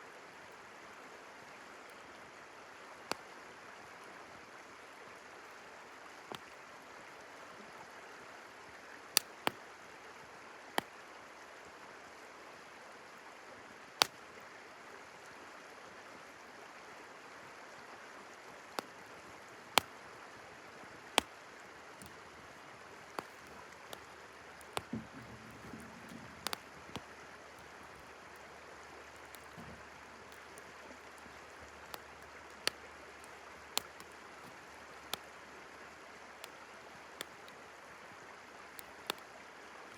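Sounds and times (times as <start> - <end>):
river flowing: 0.0 - 39.9
campfire crackling and popping: 6.3 - 6.6, 9.1 - 9.6, 14.0 - 14.3, 18.7 - 37.8, 38.6 - 39.9.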